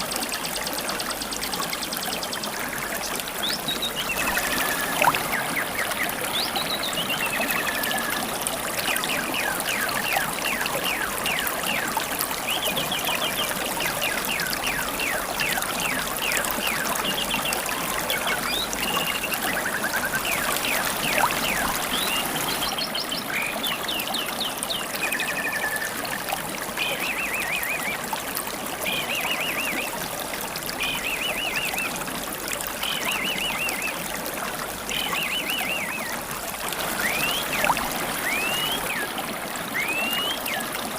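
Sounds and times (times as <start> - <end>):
stream babbling: 0.0 - 40.9
songbirds chirping and trilling: 1.0 - 26.0.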